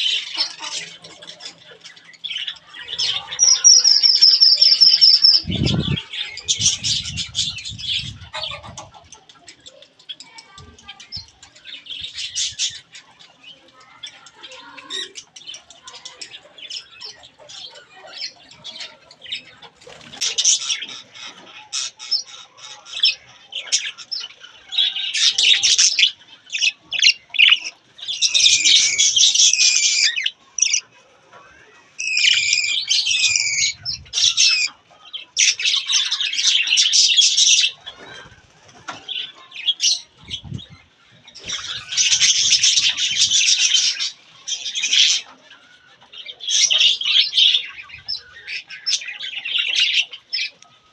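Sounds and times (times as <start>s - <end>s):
budgerigar chicks calling: 0.0s - 9.0s, 20.2s - 30.9s, 32.0s - 38.4s.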